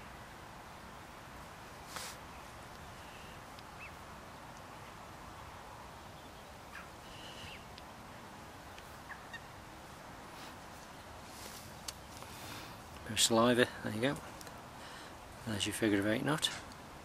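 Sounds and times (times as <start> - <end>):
steady background hiss: 0.0 - 17.0
faint bird calls: 1.8 - 4.0, 6.0 - 7.8, 8.6 - 9.6.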